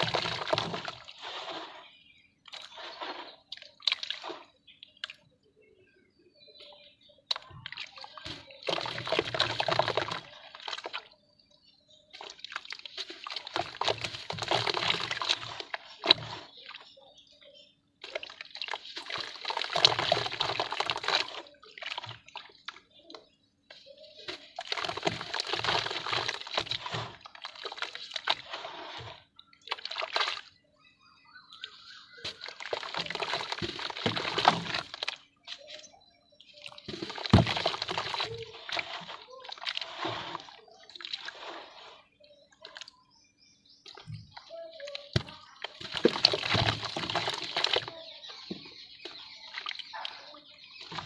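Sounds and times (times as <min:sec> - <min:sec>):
wet dirt crumbling and splashing: 0:00.0 - 0:05.4, 0:07.3 - 0:17.0, 0:18.0 - 0:30.6, 0:31.4 - 0:43.0, 0:43.8 - 0:51.0.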